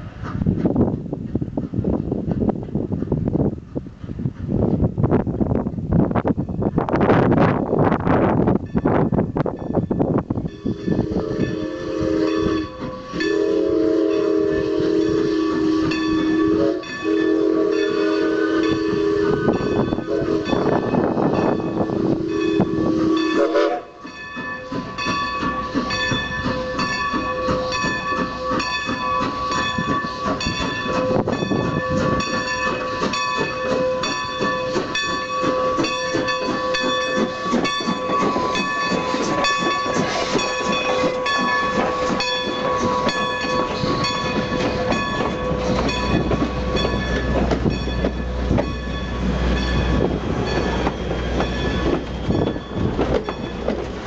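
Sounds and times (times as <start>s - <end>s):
train cars rolling: 0.0s - 54.0s
steam train whistle: 10.5s - 47.4s
high ringing tones: 24.0s - 53.7s.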